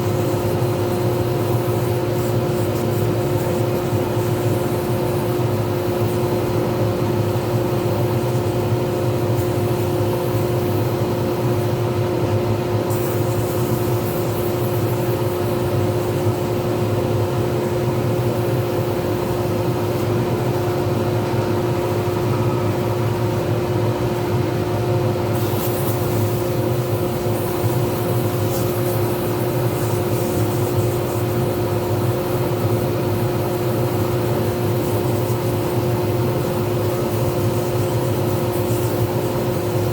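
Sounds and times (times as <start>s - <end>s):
lathe humming and whining: 15.6s - 25.4s.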